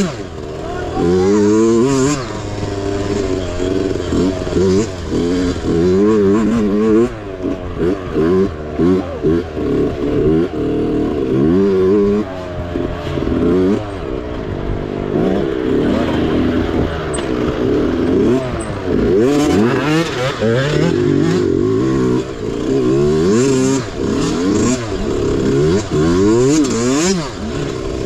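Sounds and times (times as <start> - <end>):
mini bike engine revving: 0.0 - 28.0
clatter: 12.0 - 28.0.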